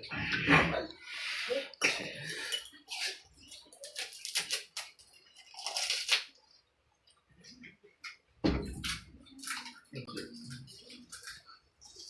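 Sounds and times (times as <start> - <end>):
crunching and slurping: 2.2 - 6.5.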